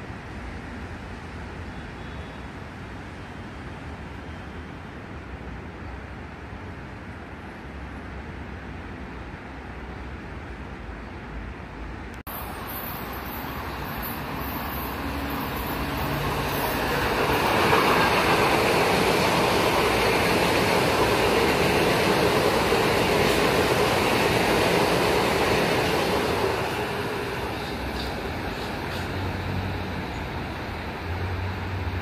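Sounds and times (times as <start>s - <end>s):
train wheels on rails: 12.2s - 32.0s.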